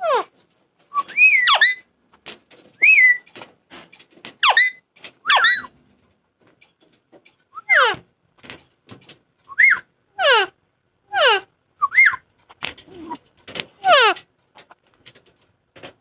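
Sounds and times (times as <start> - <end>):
parrot whistling: 9.5 - 9.8, 11.8 - 12.2.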